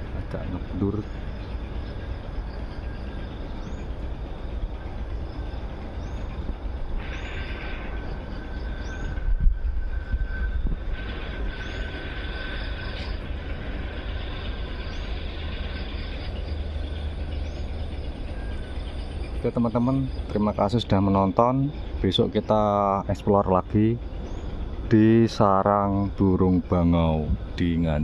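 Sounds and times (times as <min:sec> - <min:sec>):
wind rumble on microphone: 0:00.0 - 0:21.6
steady high buzz: 0:00.0 - 0:28.0.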